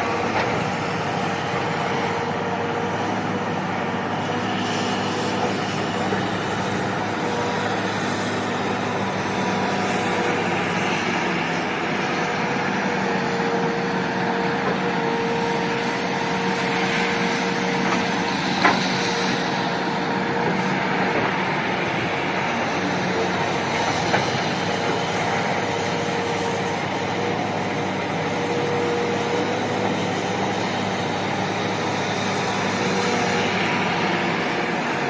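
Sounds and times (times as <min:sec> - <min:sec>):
heavy machine engine hum: 0:00.0 - 0:35.0.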